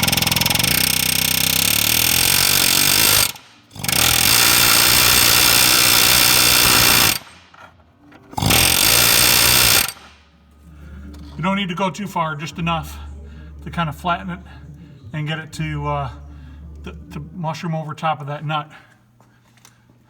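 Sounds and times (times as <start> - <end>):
pneumatic air hammer hammering metal: 0.0 - 10.2.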